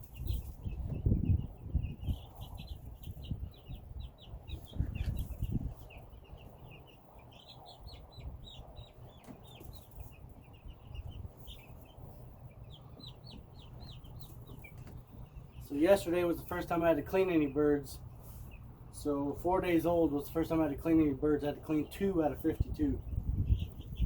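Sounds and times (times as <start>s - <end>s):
chicks peeping: 0.0s - 24.0s.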